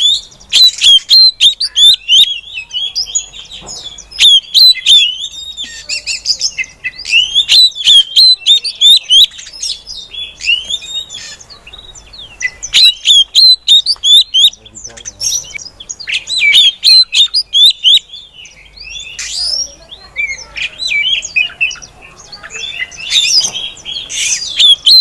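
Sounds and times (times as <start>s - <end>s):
bird chirping: 0.0s - 25.0s.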